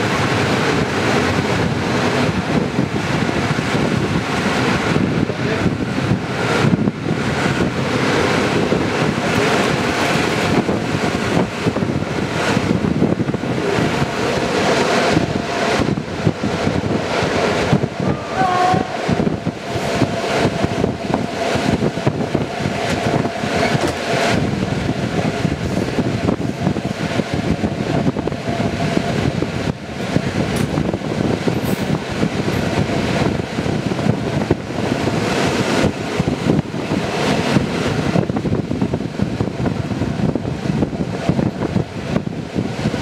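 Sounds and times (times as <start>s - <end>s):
train running rush: 0.0s - 43.0s
train wheels clattering over rails: 0.0s - 43.0s.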